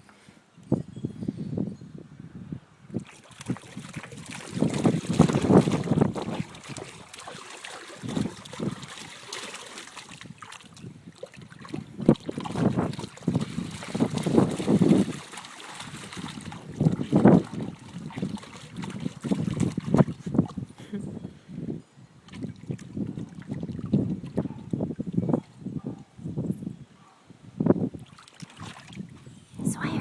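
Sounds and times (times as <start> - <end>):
dog splashing in water: 3.0 - 20.6, 28.0 - 29.0.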